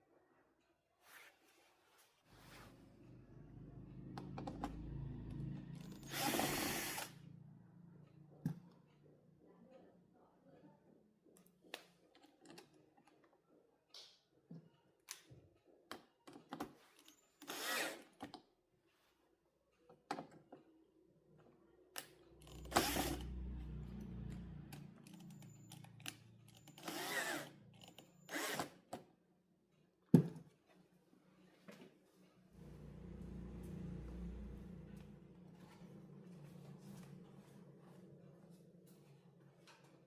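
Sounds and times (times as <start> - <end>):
power drill running: 5.8 - 7.2, 17.4 - 18.0, 22.4 - 23.8, 26.6 - 28.8.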